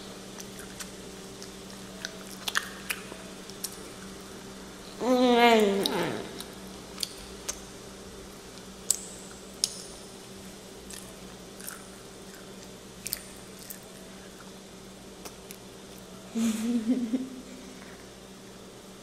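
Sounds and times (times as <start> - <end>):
faint steady hum: 0.0 - 19.0
child chewing: 0.1 - 10.0, 10.8 - 14.6.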